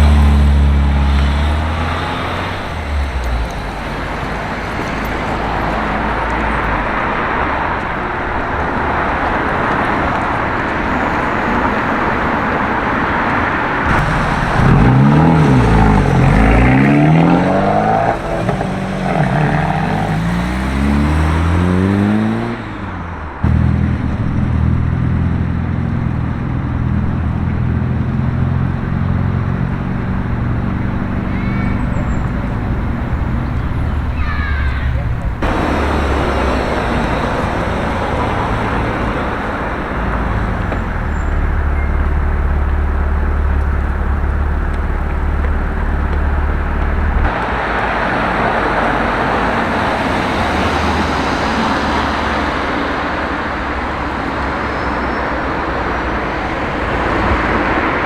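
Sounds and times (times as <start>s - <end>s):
engine idling: 0.0s - 11.3s, 11.9s - 21.4s, 23.3s - 47.4s
car engine revving hard: 0.0s - 58.0s
car traffic passing: 0.0s - 58.0s.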